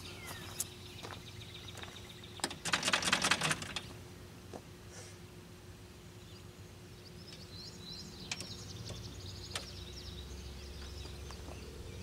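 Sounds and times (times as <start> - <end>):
bird chirping: 0.0 - 2.7, 6.0 - 12.0
low steady hum and rumble: 0.0 - 12.0.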